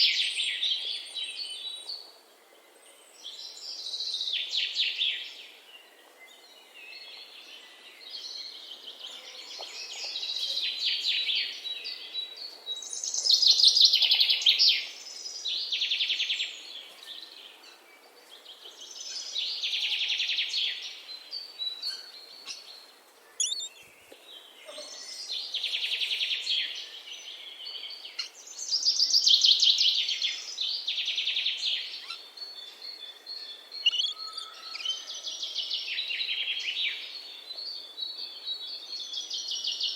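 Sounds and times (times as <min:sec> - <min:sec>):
faint bird chirps: 0:23.3 - 0:23.9, 0:32.0 - 0:35.2
songbird trilling: 0:23.4 - 0:23.8, 0:33.8 - 0:35.0.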